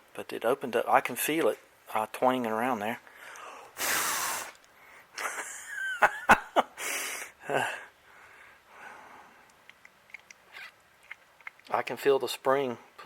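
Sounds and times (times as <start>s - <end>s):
man puffing and exhaling: 3.1s - 5.1s
sharp clicks: 9.5s - 11.8s.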